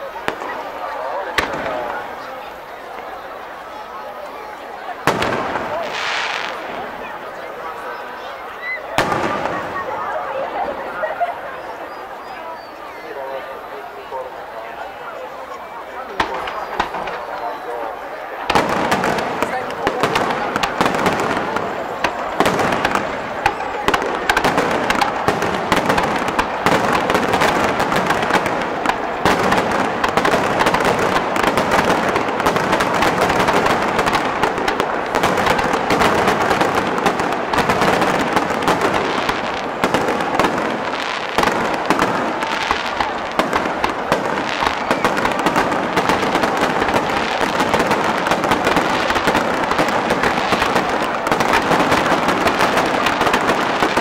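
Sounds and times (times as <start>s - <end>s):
firework shells bursting: 16.2s - 17.4s, 18.4s - 54.0s.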